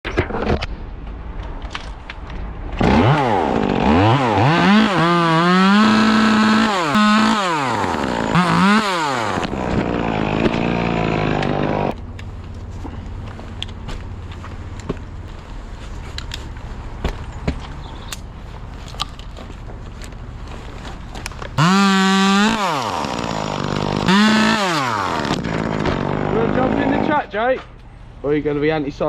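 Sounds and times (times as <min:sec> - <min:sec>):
chainsaw revving: 0:02.8 - 0:12.0, 0:21.6 - 0:27.3.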